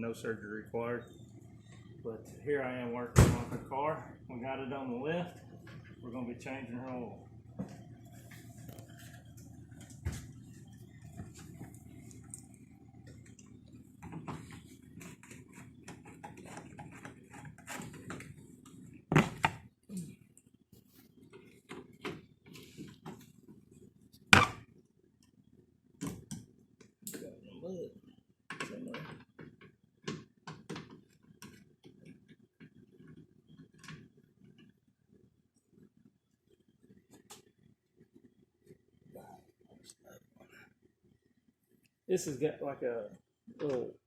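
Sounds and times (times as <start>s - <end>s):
steady low hum: 0.0s - 20.4s.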